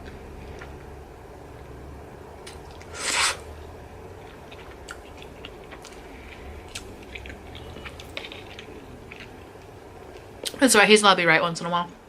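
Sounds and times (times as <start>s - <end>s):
soft mouth sounds: 2.7s - 3.5s
person chewing food: 4.1s - 10.6s.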